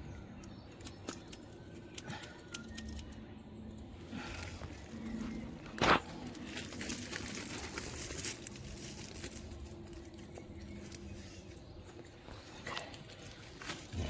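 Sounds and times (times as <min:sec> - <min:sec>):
plastic netting rustling and crackling: 0:05.7 - 0:11.4.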